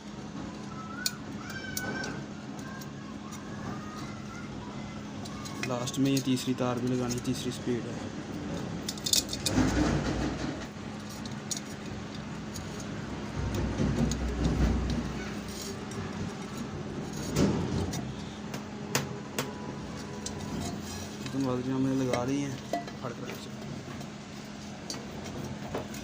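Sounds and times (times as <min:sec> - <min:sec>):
metallic clinking and rattling: 0:08.4 - 0:18.4.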